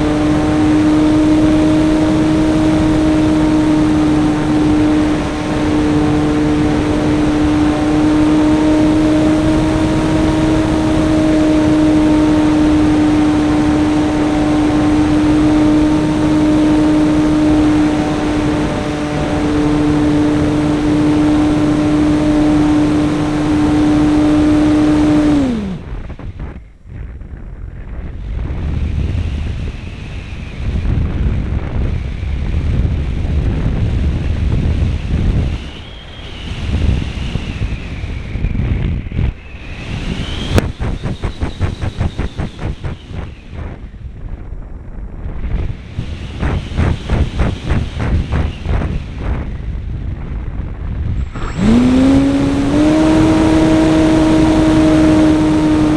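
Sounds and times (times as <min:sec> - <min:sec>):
model airplane motor droning: 0:00.0 - 0:26.5, 0:51.0 - 0:55.9
wind rushing past airframe: 0:00.0 - 0:55.9.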